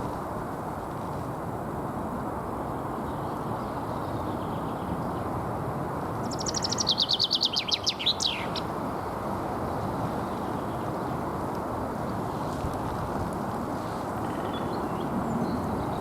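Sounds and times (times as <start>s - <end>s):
chaffinch singing: 6.2s - 11.2s, 14.2s - 16.0s.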